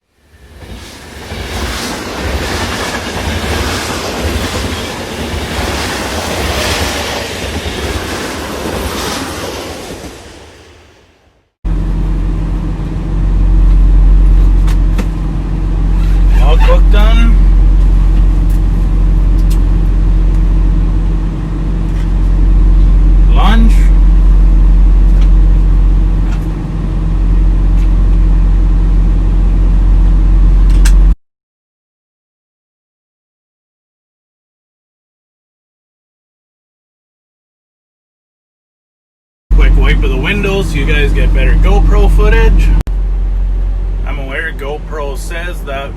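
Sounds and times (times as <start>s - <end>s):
truck diesel engine droning: 11.7s - 31.1s, 39.5s - 45.9s.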